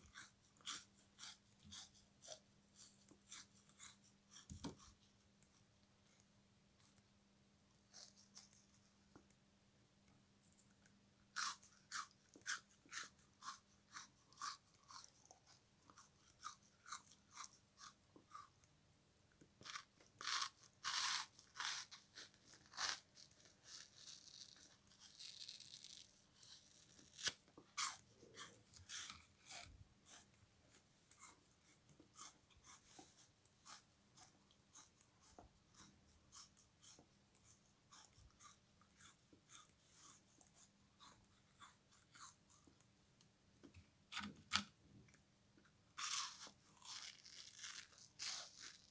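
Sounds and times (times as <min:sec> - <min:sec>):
frozen sponge crunching when chewed: 0:00.1 - 0:05.0, 0:11.3 - 0:18.7, 0:19.6 - 0:42.7, 0:46.0 - 0:48.9.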